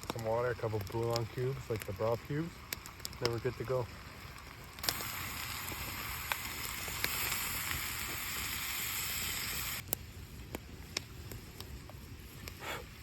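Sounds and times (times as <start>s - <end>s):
pot sizzling: 0.0s - 9.8s
fire crackles: 0.0s - 13.0s.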